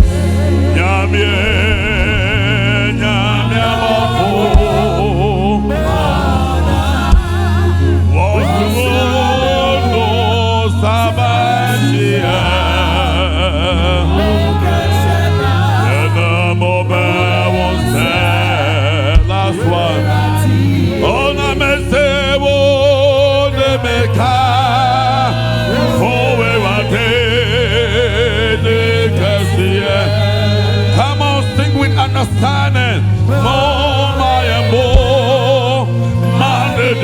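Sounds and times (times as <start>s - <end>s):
gospel singing with band: 0.0s - 37.0s.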